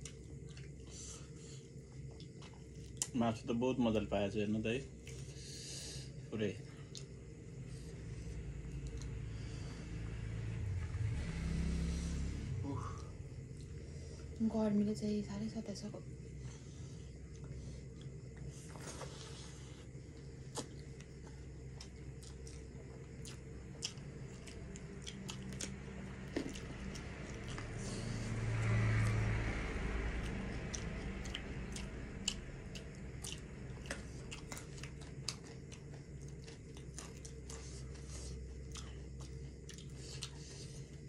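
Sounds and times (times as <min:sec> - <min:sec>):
chewing and mouth clicks: 0:00.0 - 0:01.1, 0:01.8 - 0:03.2, 0:06.9 - 0:07.2, 0:08.8 - 0:09.2, 0:20.2 - 0:27.7, 0:30.2 - 0:41.0
steady low hum: 0:00.0 - 0:41.0
low rumble: 0:07.2 - 0:18.5, 0:23.5 - 0:35.0.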